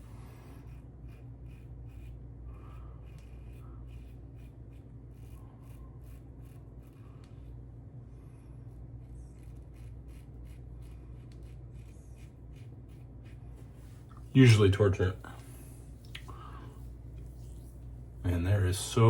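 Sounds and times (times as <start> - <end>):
razor scraping stubble: 0.0 - 7.6, 8.7 - 16.2.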